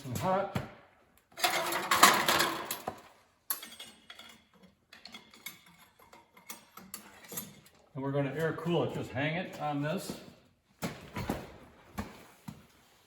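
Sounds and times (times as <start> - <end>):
metal clattering and scraping: 1.3 - 8.6.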